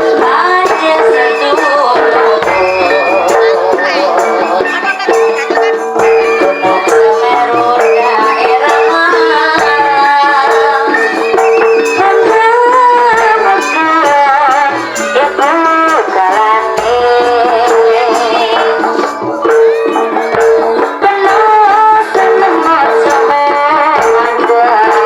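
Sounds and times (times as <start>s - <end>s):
percussion: 0.0s - 25.0s
wavering melody: 0.0s - 25.0s
steady held tone: 0.2s - 16.0s.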